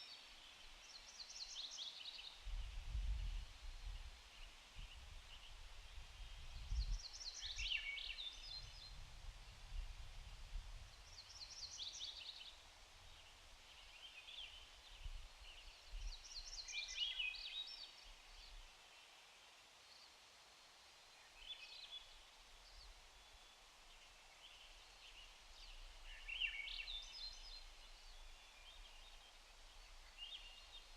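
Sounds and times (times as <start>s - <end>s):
songbird singing: 0.0s - 9.9s, 10.8s - 20.3s, 21.0s - 30.9s
faint steady hiss: 0.0s - 30.9s.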